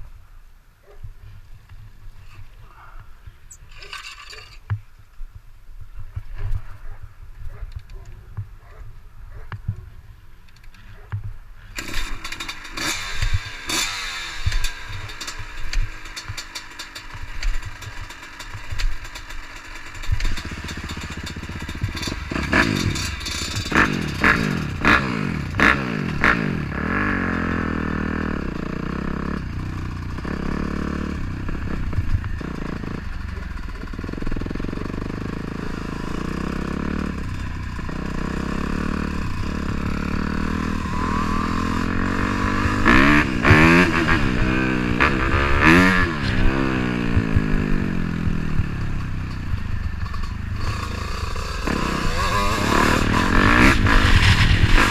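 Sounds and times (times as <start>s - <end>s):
dirt bike engine revving: 11.8s - 54.9s.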